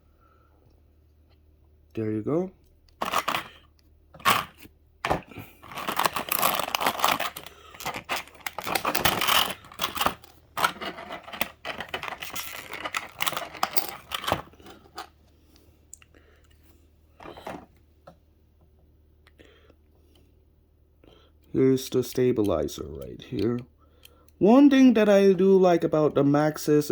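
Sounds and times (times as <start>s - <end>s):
packaging rustling and tearing: 3.0s - 3.6s, 4.2s - 15.1s.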